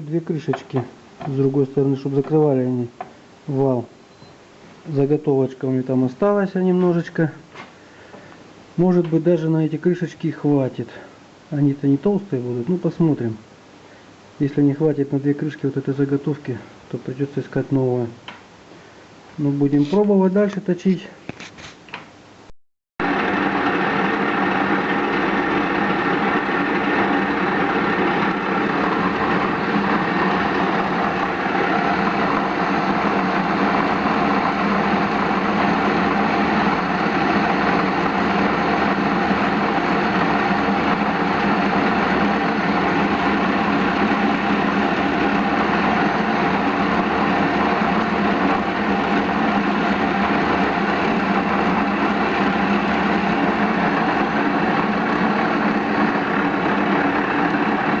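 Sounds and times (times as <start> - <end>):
metal lathe humming: 23.0 - 58.0.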